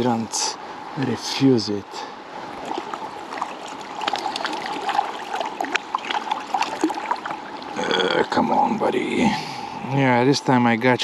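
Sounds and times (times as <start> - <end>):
river water trickling: 0.0 - 11.0
small water splashes: 2.1 - 8.8.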